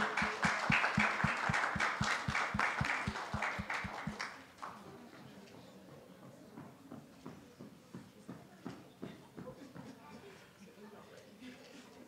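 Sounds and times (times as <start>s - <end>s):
congregation applauding: 0.0s - 4.5s.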